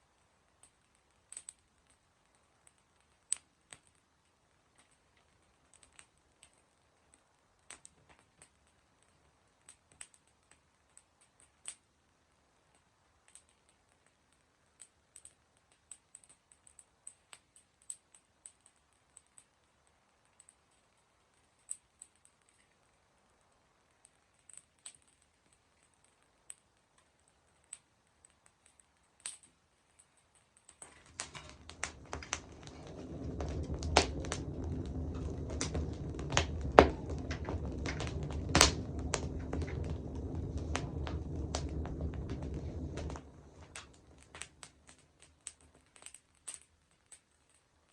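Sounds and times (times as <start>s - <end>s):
campfire crackling: 12.7s - 47.9s
low rumble: 30.8s - 45.2s.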